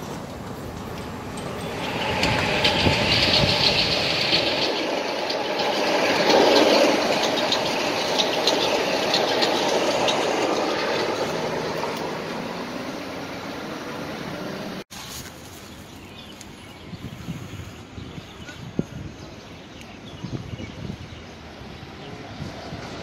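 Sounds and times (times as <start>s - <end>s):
train wheels clacking over rail joints: 0.0s - 12.5s.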